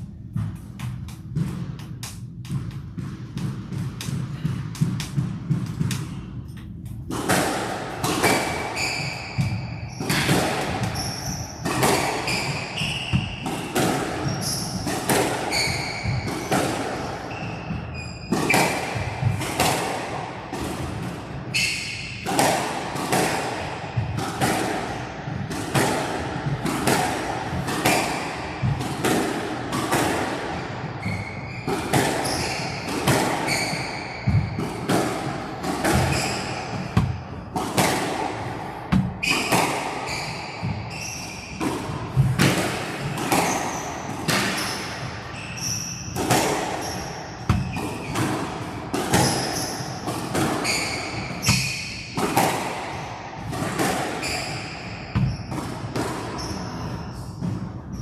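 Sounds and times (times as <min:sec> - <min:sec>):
squash ball thuds: 0:00.0 - 0:58.0
shoes squeaking on court floor: 0:08.2 - 0:19.4, 0:21.5 - 0:22.2, 0:31.0 - 0:37.5, 0:39.2 - 0:42.2, 0:43.0 - 0:48.3, 0:49.1 - 0:52.2, 0:54.2 - 0:58.0.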